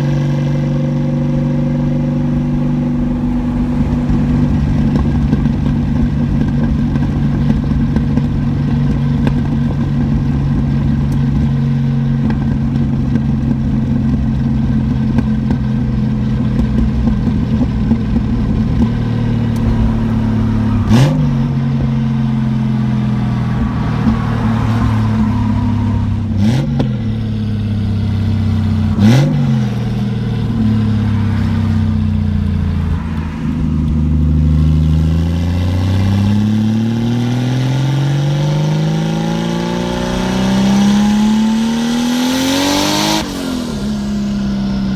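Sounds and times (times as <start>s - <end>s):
car engine running: 0.0s - 44.9s.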